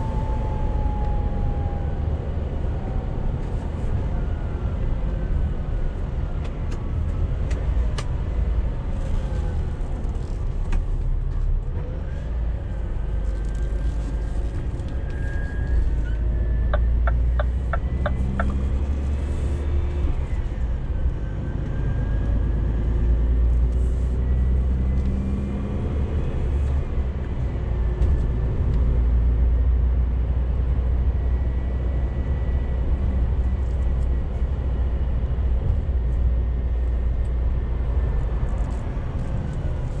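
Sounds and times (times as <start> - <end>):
truck engine rumbling: 11.3 - 40.0.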